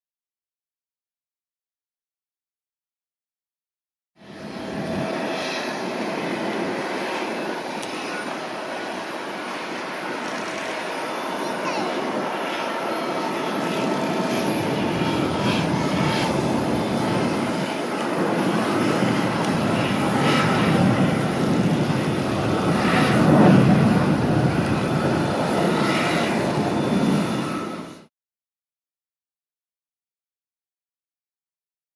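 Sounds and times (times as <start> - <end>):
jet engine roar: 4.2 - 28.1.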